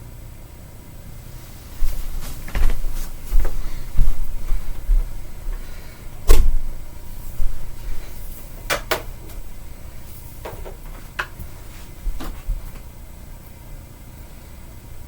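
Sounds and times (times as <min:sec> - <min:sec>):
vacuum attachments clicking and knocking: 0:08.6 - 0:09.5, 0:10.4 - 0:11.5, 0:12.1 - 0:12.9.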